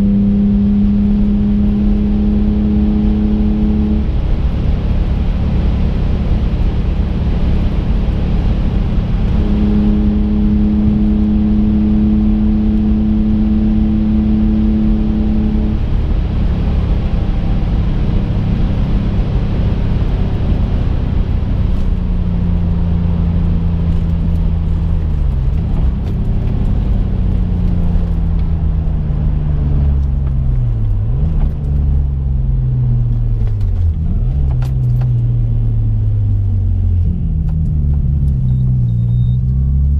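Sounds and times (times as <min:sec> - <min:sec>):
car engine running: 0:00.0 - 0:39.9
road noise inside car cabin: 0:00.0 - 0:39.9.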